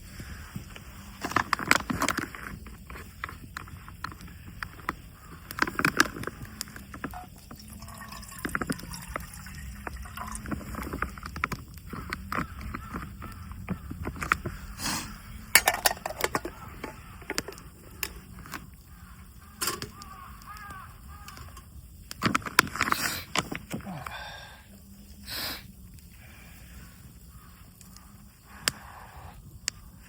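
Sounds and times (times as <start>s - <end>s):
camp cookware clicking and knocking: 1.2s - 14.5s, 15.4s - 18.7s, 19.4s - 23.8s.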